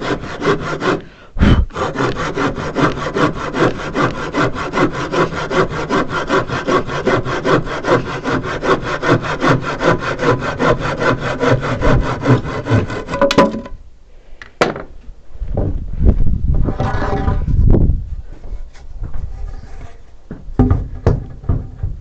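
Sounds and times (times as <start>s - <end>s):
handsaw cutting wood: 0.0s - 13.3s.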